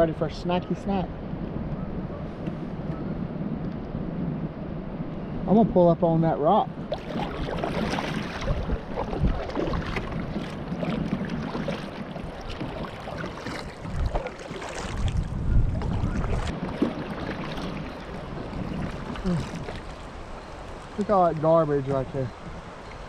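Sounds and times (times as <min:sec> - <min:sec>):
wind rumbling on microphone: 0:00.0 - 0:23.0
water splashing against kayak hull: 0:06.5 - 0:23.0.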